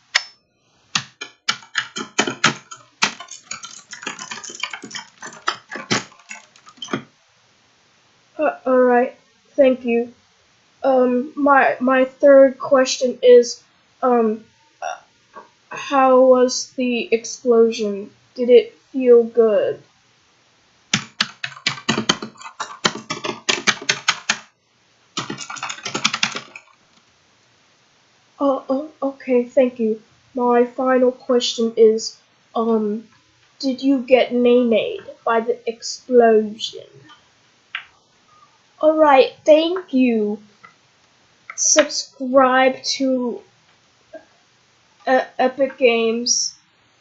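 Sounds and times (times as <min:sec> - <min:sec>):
rapid sharp clicks and taps: 0:01.0 - 0:07.1, 0:20.9 - 0:24.6, 0:25.2 - 0:27.1.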